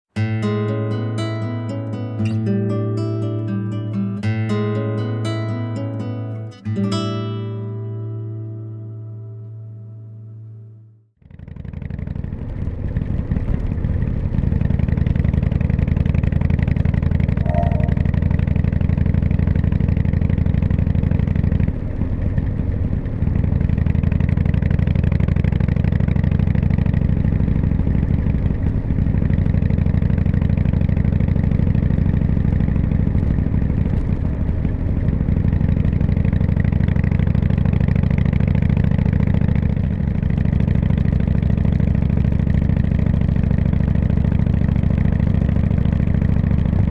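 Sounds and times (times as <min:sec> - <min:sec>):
motorcycle engine running: 0:11.2 - 0:46.9.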